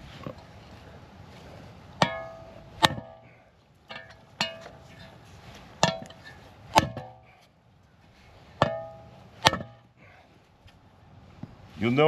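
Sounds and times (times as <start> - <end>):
hammer striking metal: 8.6 - 9.9.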